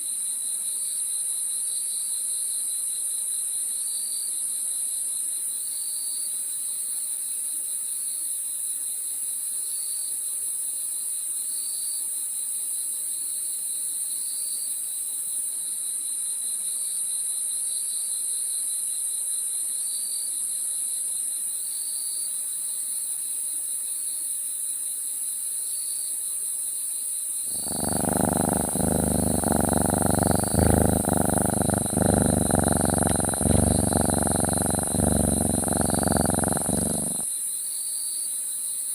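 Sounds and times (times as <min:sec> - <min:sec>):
constant high hiss: 0:21.1 - 0:38.9
crickets chirping: 0:21.2 - 0:38.9
cat purring: 0:27.5 - 0:37.3.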